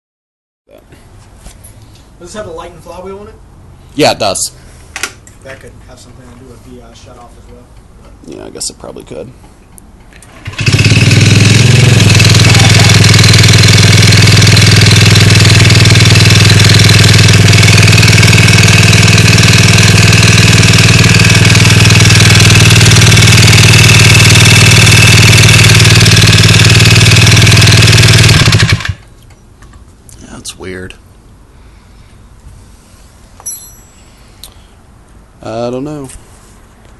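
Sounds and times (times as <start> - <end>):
engine running with rapid knock: 10.3 - 29.1.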